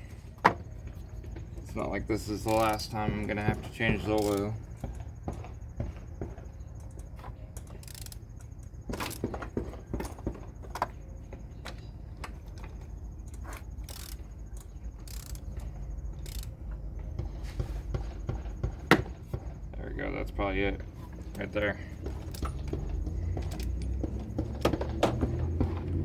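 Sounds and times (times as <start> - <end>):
steady low hum: 0.0 - 26.0
distant hammers pounding: 0.6 - 7.2, 14.2 - 26.0.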